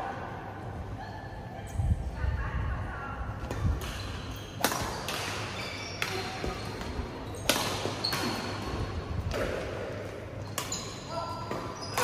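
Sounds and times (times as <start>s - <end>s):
rackets hitting shuttlecock: 3.4s - 12.0s.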